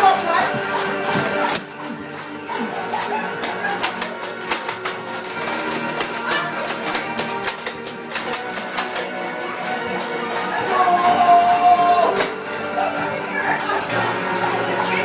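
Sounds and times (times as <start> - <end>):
sharp percussive clicks: 0.0 - 11.2
guitar music: 0.0 - 15.0.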